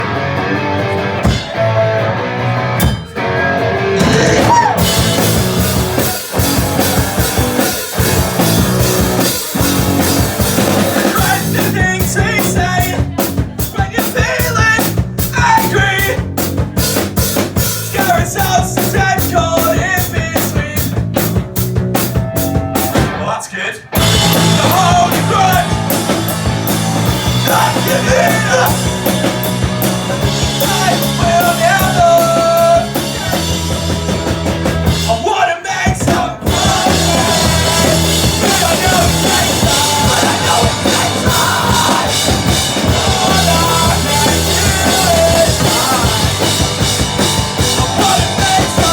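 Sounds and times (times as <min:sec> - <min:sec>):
loud drums: 0:00.0 - 0:48.9
rock band playing live: 0:00.0 - 0:48.9
person singing: 0:03.2 - 0:08.6, 0:23.2 - 0:29.2, 0:30.1 - 0:33.8, 0:34.8 - 0:48.9.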